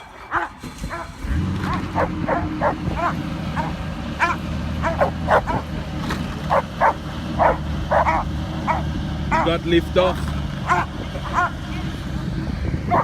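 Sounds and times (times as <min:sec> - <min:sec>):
dogs barking: 0:00.0 - 0:05.8, 0:06.4 - 0:09.6, 0:10.6 - 0:11.9.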